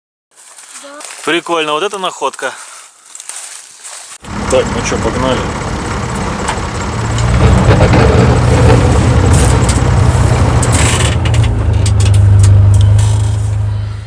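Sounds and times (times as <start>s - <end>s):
rumbling noise: 4.2s - 13.4s
vehicle engine low drone: 4.2s - 14.0s.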